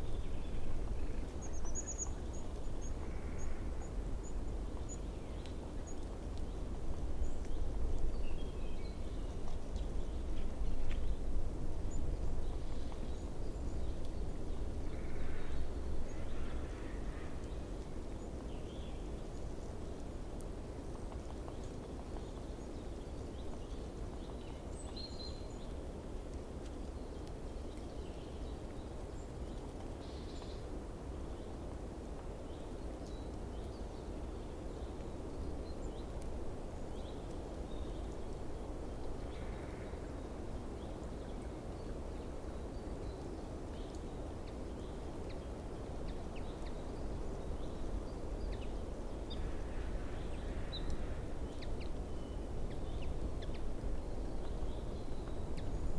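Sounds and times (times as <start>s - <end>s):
low outdoor background noise: 0.0s - 55.9s
distant small birds chirping: 33.2s - 55.9s.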